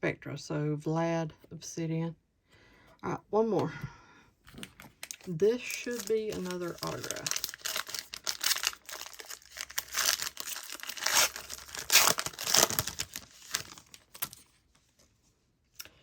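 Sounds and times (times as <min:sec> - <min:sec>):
wrapper tearing and crinkling: 0:04.5 - 0:14.6.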